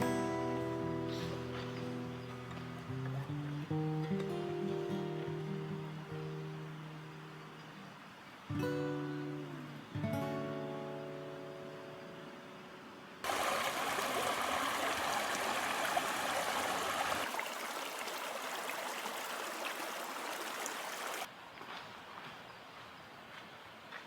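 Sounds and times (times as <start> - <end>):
stream babbling and rushing: 1.6 - 8.8, 13.2 - 21.6.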